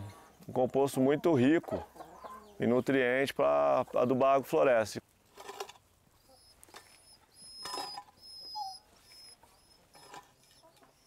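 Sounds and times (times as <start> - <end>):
shovel scraping compost: 5.2 - 5.9
small bird chirping: 6.1 - 11.0.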